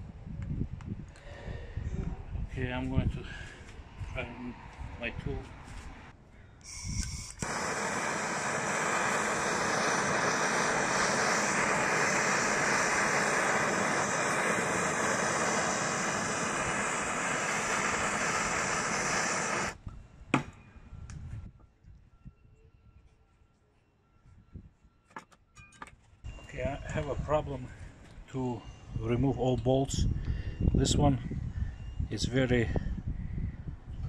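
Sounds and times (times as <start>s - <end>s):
power cutting tool running: 7.4s - 19.8s.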